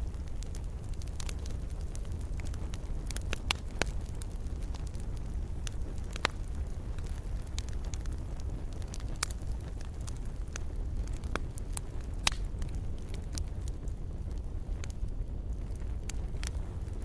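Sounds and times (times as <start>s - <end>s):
campfire flame rushing: 0.0s - 17.0s
fire crackles and pops: 0.0s - 17.0s.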